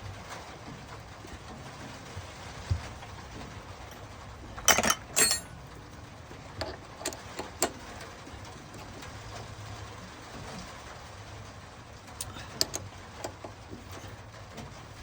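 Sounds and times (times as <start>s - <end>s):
faint steady hum: 0.0s - 15.0s
metal clattering: 4.6s - 5.6s.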